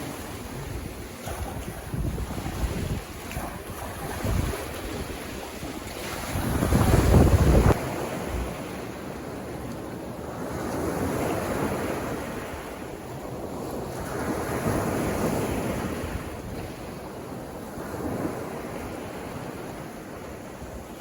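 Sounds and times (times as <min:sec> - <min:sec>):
waves washing onto beach: 0:00.0 - 0:21.0
wind buffeting microphone: 0:00.0 - 0:21.0.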